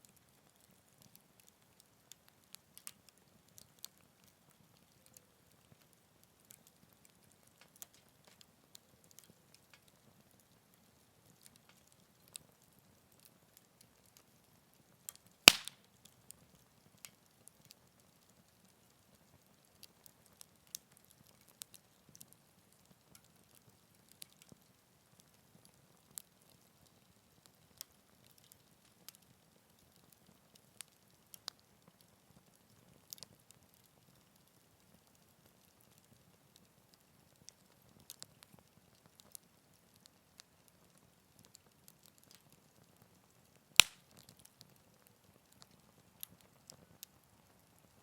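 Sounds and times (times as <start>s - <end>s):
wood fire crackling: 0.1s - 48.0s
loud pop of fire: 15.5s - 15.8s, 43.8s - 44.1s.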